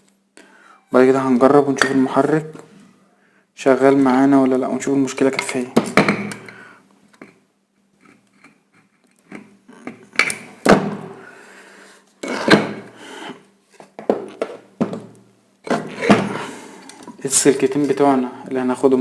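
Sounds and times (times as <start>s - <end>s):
tools knocking on work surface: 5.4s - 6.5s, 14.0s - 16.4s.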